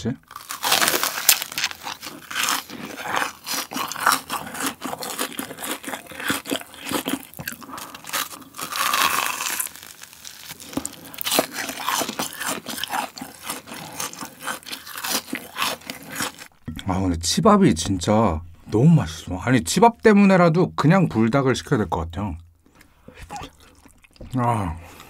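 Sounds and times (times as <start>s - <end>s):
crunchy chewing: 0.3s - 16.6s
wet mouth sounds: 22.4s - 25.0s.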